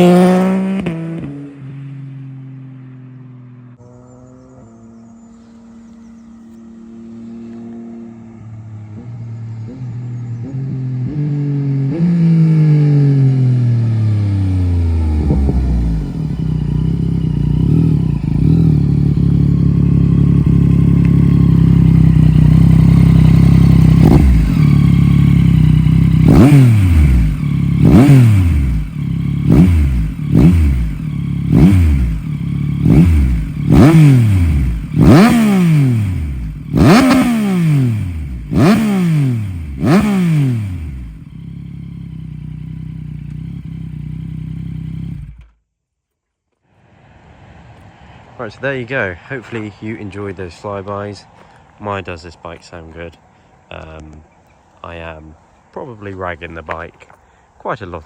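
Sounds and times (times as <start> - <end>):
sharp engine revs: 0.0 - 1.5, 3.8 - 45.5
motorcycle engine: 0.0 - 45.7.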